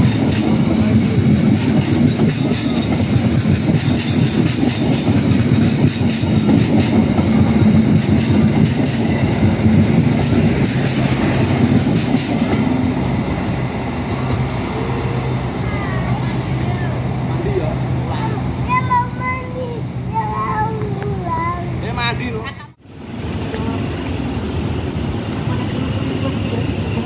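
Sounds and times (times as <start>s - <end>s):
wheels clicking over rail joints: 0.0s - 13.2s
train rumble: 0.0s - 27.0s.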